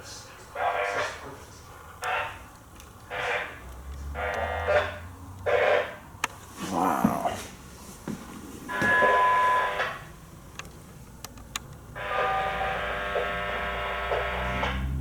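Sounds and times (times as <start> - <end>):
locomotive air horn blasts: 12.0 - 14.9.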